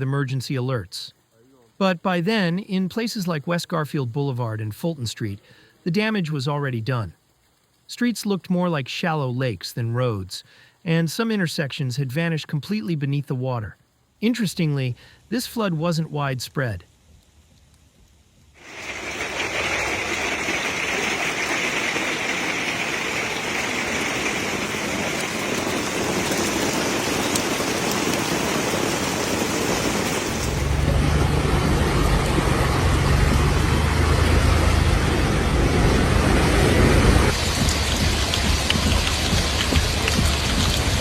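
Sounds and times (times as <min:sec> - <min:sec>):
heavy rain pouring: 0:18.6 - 0:41.0
deep low rumble: 0:30.3 - 0:41.0.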